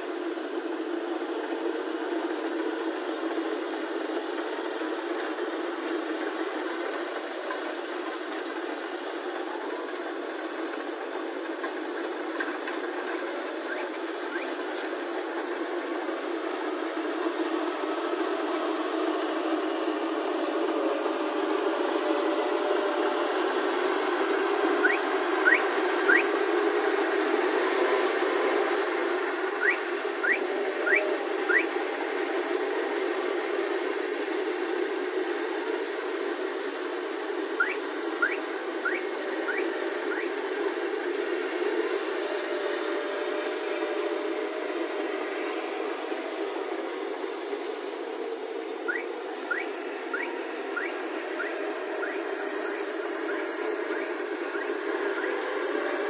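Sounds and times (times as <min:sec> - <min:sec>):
combine harvester drone: 0:00.0 - 0:56.0
rising whistled chirps: 0:24.8 - 0:26.3, 0:29.6 - 0:31.7, 0:37.6 - 0:40.4, 0:48.8 - 0:55.4.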